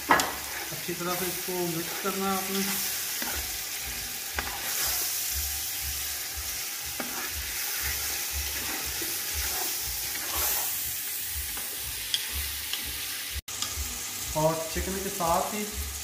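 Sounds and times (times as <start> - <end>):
chicken sizzling in hot oil: 0.0 - 16.0
spoon clicking against pan: 11.6 - 12.8.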